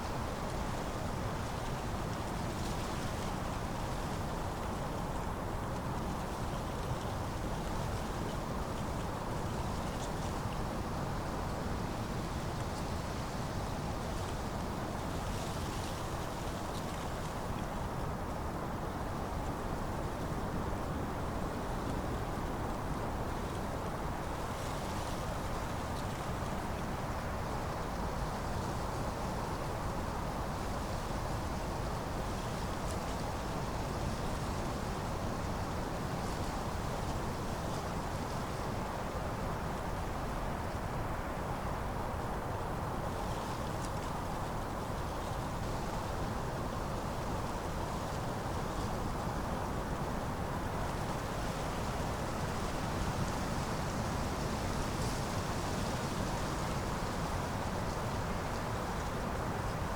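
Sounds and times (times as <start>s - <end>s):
wind blowing through leaves: 0.0s - 59.9s.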